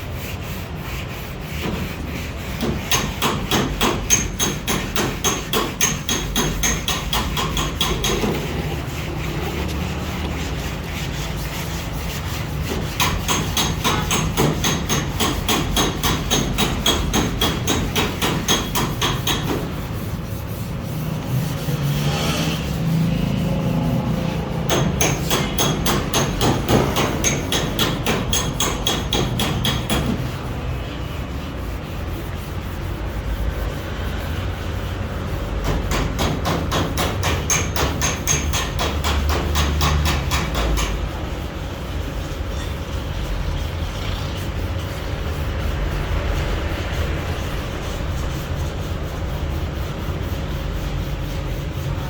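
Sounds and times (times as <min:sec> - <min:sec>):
hammer tapping on metal: 0:02.5 - 0:08.6, 0:12.6 - 0:19.8, 0:24.7 - 0:30.3, 0:35.6 - 0:41.1.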